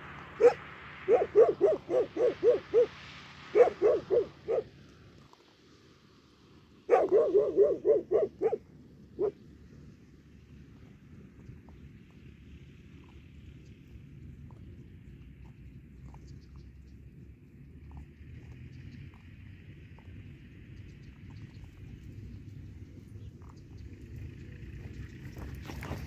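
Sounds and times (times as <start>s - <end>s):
dog barking: 0.4s - 2.9s, 3.5s - 4.7s, 6.9s - 9.4s.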